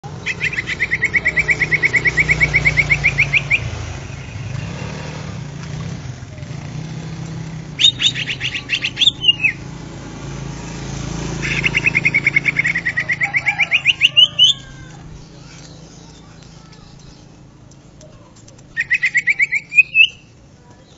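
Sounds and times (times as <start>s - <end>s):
bird singing fast trill: 0.1s - 5.1s, 7.7s - 9.7s, 11.2s - 14.6s, 18.7s - 20.9s.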